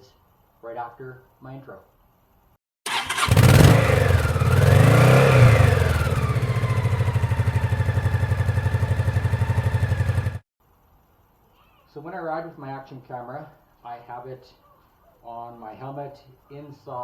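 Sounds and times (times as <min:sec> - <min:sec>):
motorcycle engine revving and idling: 0:02.9 - 0:10.4.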